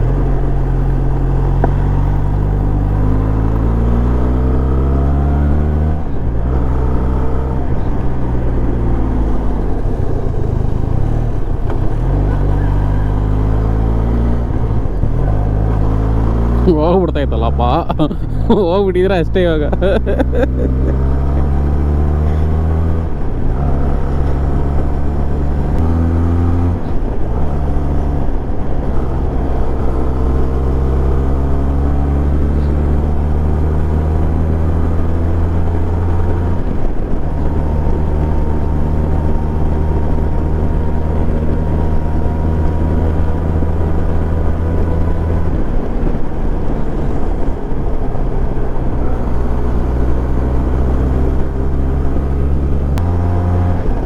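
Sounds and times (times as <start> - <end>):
motorcycle engine running: 6.1 - 25.9.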